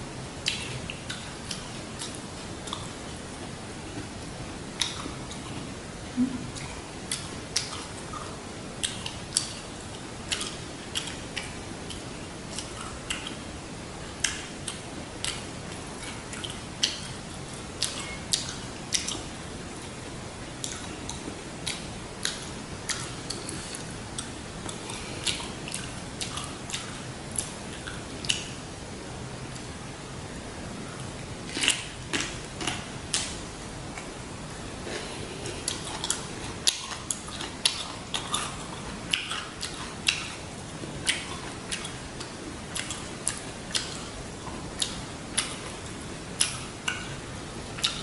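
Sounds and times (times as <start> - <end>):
faint steady hiss: 0.0 - 48.0
chewing with wet mouth clicks: 0.4 - 2.9, 4.8 - 5.6, 6.6 - 13.4, 14.2 - 20.0, 20.6 - 28.6, 35.4 - 40.4, 41.0 - 47.2, 47.8 - 48.0.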